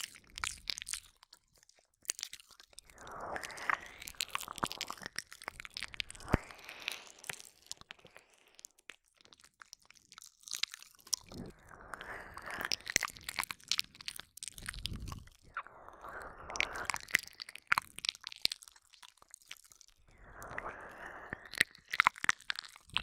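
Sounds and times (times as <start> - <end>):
tongue clicks and smacks: 0.0 - 23.0
breathy wet mouth noise: 2.2 - 8.7, 11.0 - 18.2, 19.9 - 23.0.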